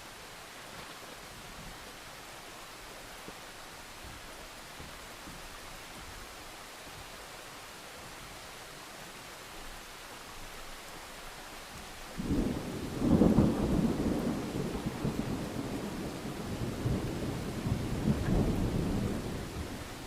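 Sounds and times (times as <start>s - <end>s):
steady rain: 0.0s - 20.0s
thunder clap and rumble: 12.1s - 20.0s.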